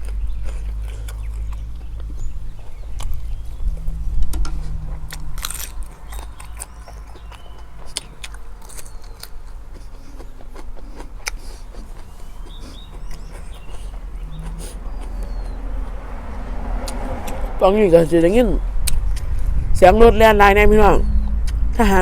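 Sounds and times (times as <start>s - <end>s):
wind rumble on microphone: 0.0s - 8.8s, 12.1s - 22.0s
crunching and chewing food: 0.0s - 19.7s
faint bird chirps: 12.0s - 15.9s.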